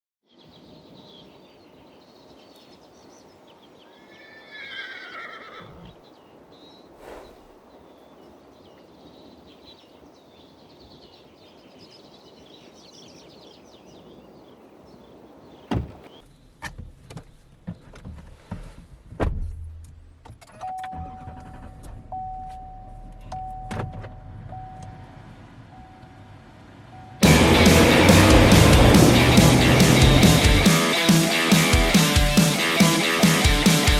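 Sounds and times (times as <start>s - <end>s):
low engine rumble: 21.0s - 30.7s.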